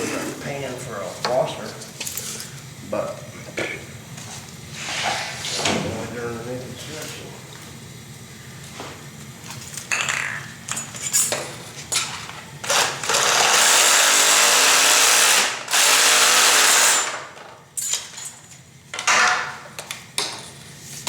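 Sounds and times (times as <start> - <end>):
power saw cutting plastic pipe: 12.6 - 17.2.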